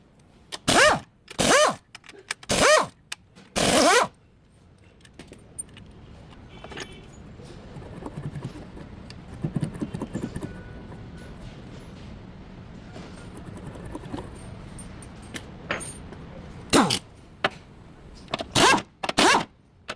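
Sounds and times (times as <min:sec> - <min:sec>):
impact wrench whirring: 0:00.6 - 0:01.8, 0:02.5 - 0:03.0, 0:03.6 - 0:04.1, 0:16.7 - 0:17.1, 0:18.4 - 0:19.5
metal tools clinking: 0:14.3 - 0:16.2.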